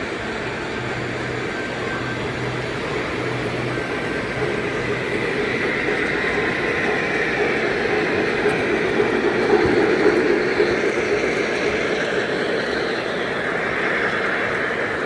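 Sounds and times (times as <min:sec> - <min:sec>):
faint hum: 0:00.0 - 0:10.4
model trains rolling on track: 0:00.0 - 0:15.0.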